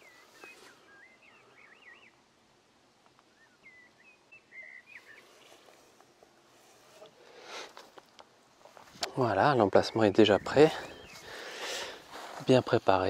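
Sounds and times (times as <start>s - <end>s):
faint whistled bird song: 0.0s - 2.3s, 3.2s - 6.0s, 9.4s - 12.0s.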